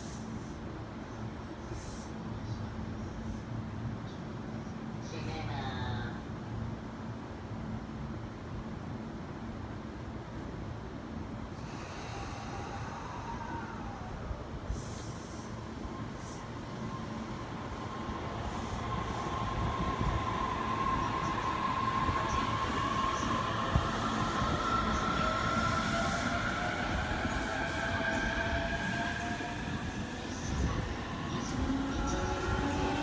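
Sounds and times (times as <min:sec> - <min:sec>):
train wheels rolling on rail: 0:14.7 - 0:33.0.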